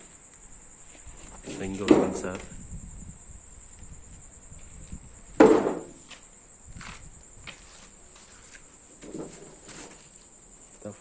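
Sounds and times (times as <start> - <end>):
crickets chirring: 0.0 - 11.0
sharp knock: 5.4 - 6.0.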